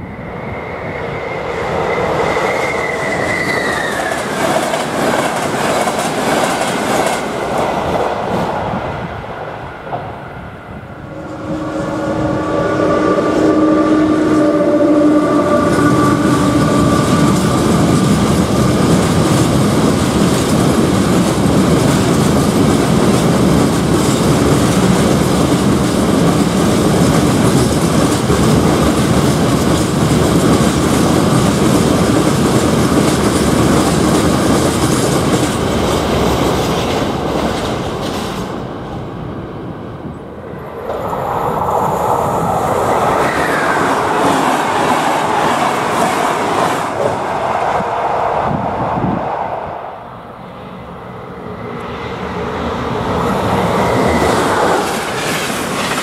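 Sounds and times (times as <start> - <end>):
approaching train: 0.0 - 56.0
wagon wheels clacking on rails: 3.1 - 8.1, 15.6 - 38.6, 53.7 - 56.0
locomotive multi-note tone: 11.0 - 18.8.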